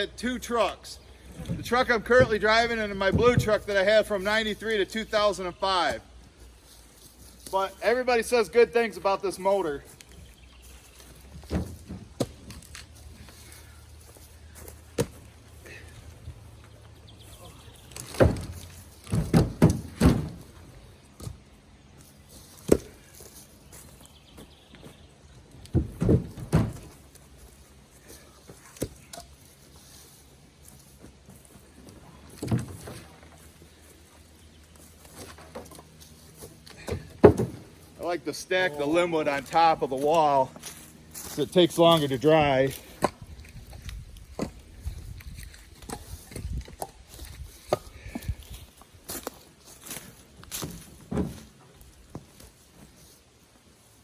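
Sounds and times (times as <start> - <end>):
low steady hum: 0.0 - 54.0
firewood knocking together: 17.9 - 20.6, 25.7 - 27.0, 36.4 - 37.8.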